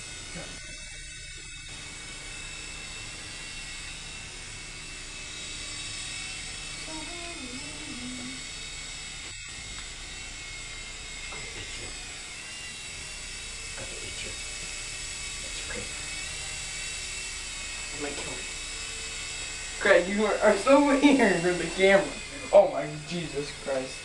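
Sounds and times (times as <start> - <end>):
small helicopter motor whine: 0.0 - 24.0.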